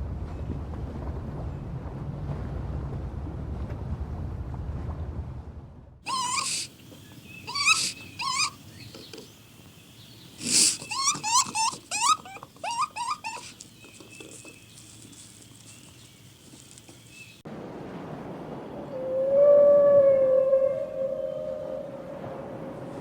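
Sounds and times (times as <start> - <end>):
dog-like animal yelping: 6.1 - 6.7, 7.5 - 8.6, 10.4 - 13.6.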